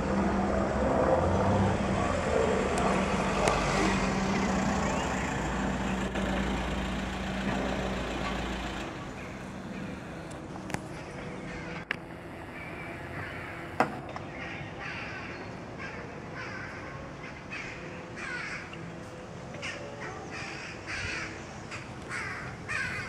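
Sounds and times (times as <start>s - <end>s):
birds calling: 2.8s - 19.0s, 19.6s - 23.0s
sharp clicks: 9.4s - 10.9s.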